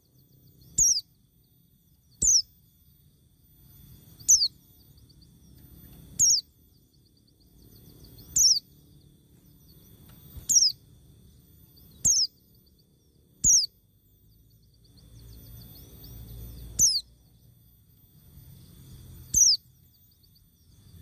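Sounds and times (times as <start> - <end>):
bird whistling downward: 6.2 - 6.5, 8.1 - 8.7, 10.4 - 10.8, 11.9 - 12.4, 13.4 - 13.8, 15.2 - 17.1, 19.3 - 19.7.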